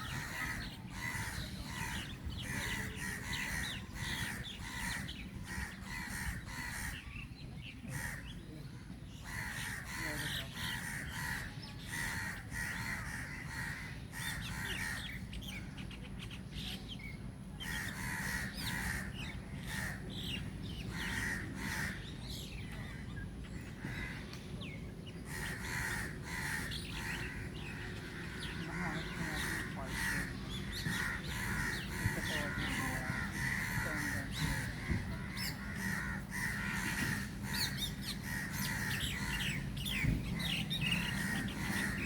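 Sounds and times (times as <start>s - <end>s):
steady low rumble: 0.0s - 8.8s, 18.4s - 42.0s
birds harsh repeated calls: 0.0s - 42.0s.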